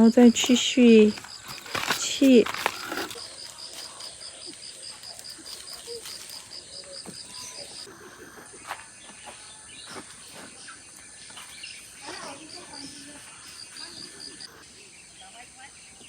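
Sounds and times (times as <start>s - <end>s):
faint bird calls: 0.0s - 16.0s
insect chirping: 0.0s - 16.0s.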